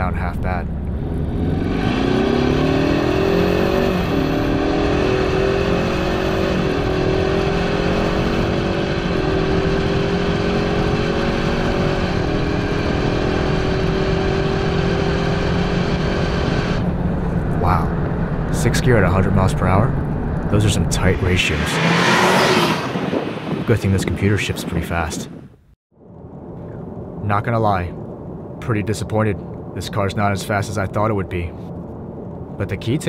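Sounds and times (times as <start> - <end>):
car engine accelerating hard: 0.6 - 23.7.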